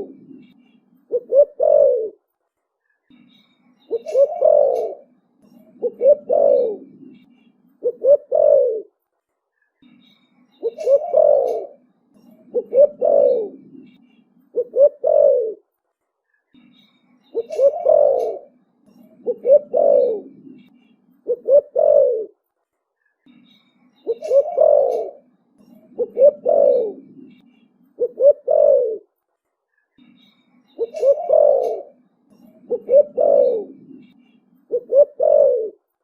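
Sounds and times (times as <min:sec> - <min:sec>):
dove cooing: 0:00.0 - 0:02.2, 0:03.9 - 0:08.9, 0:10.6 - 0:15.6, 0:17.3 - 0:22.4, 0:24.1 - 0:27.4, 0:28.0 - 0:29.1, 0:30.8 - 0:35.8.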